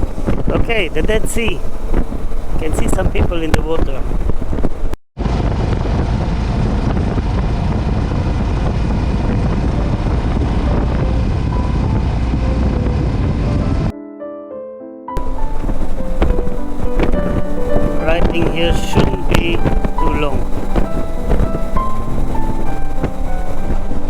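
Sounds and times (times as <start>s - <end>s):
motorcycle engine running: 0.0s - 5.0s, 15.2s - 24.0s
wind buffeting microphone: 0.0s - 13.9s, 15.2s - 24.0s
background music: 9.9s - 24.0s.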